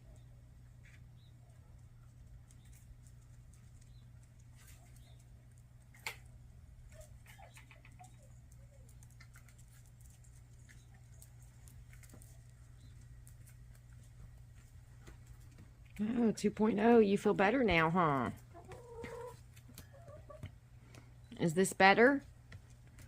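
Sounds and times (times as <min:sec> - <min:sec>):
hens pecking and scratching: 0:00.0 - 0:16.3, 0:16.9 - 0:21.3, 0:22.2 - 0:23.0
steady low hum: 0:00.0 - 0:23.0
hens clucking softly: 0:06.9 - 0:09.0, 0:18.4 - 0:20.6.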